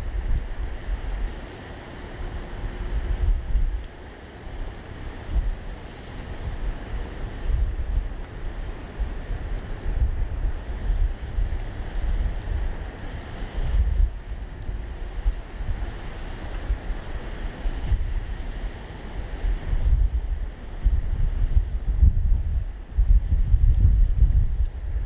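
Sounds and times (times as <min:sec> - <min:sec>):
wind buffeting microphone: 0:00.0 - 0:01.6, 0:02.2 - 0:25.0.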